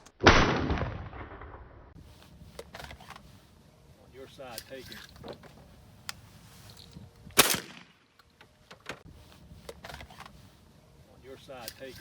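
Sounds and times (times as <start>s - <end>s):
shotgun shot with echo: 7.4s - 8.0s.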